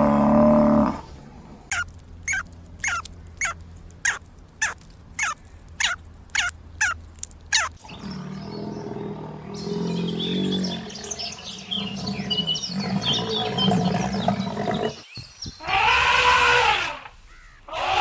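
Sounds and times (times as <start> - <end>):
small birds chirping: 1.7 - 15.7
large animal low growling call: 7.8 - 15.0.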